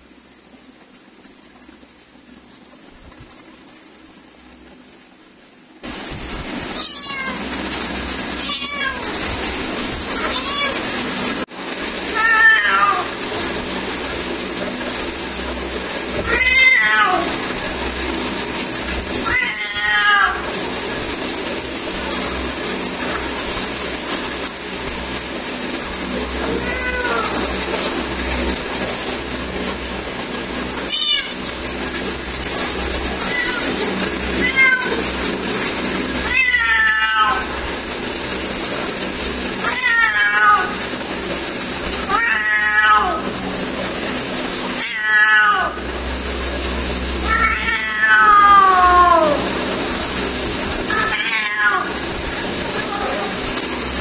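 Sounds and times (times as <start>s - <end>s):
steady low hum: 0.0s - 54.0s
cat meowing: 6.7s - 7.4s, 8.4s - 9.3s, 10.1s - 10.9s, 19.2s - 20.4s, 26.5s - 27.5s, 30.8s - 31.4s, 33.2s - 35.1s, 36.2s - 37.5s, 39.6s - 40.8s, 42.1s - 43.2s, 44.8s - 45.8s, 47.2s - 49.5s, 50.9s - 52.0s, 52.7s - 53.5s.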